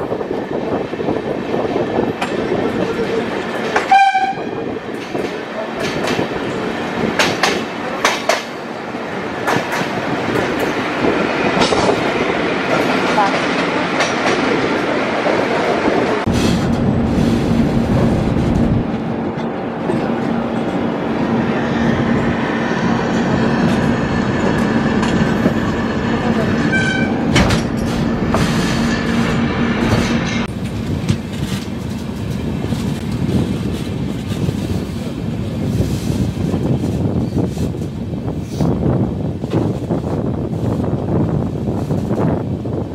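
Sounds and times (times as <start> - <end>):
train horn: 3.8 - 4.7, 26.6 - 27.3
train wheels clacking over rail joints: 4.9 - 8.6, 9.4 - 12.1.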